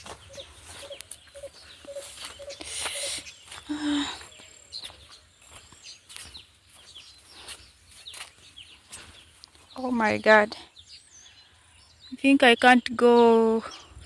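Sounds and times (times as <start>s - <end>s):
rustling vegetation: 0.0s - 12.0s
small birds chirping: 0.0s - 14.0s.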